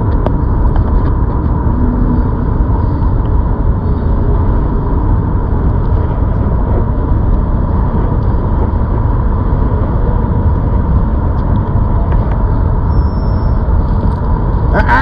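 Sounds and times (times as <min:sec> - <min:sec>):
faint steady whine: 0:00.0 - 0:15.0
road noise: 0:00.0 - 0:15.0
wind buffeting microphone: 0:00.0 - 0:15.0.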